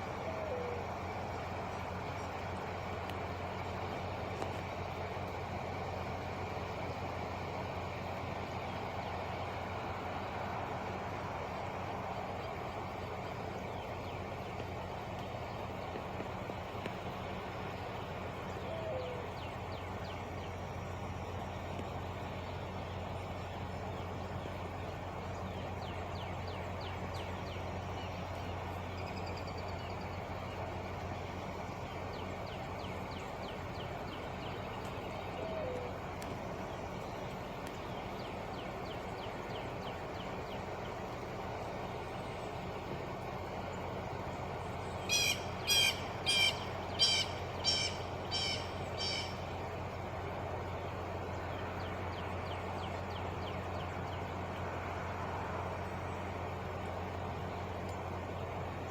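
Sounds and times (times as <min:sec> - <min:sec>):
steady low hum: 0:00.0 - 0:58.9
bird harsh calls: 0:44.9 - 0:49.7.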